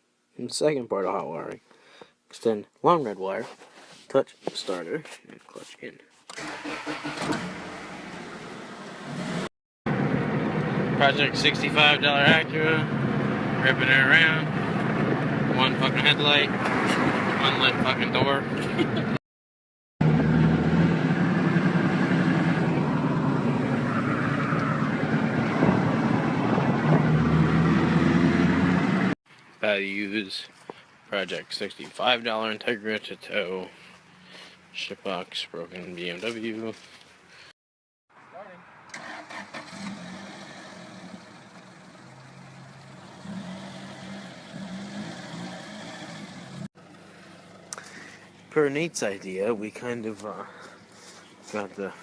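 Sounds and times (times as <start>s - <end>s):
car engine driving: 6.3s - 19.1s, 20.0s - 29.2s, 38.8s - 50.8s.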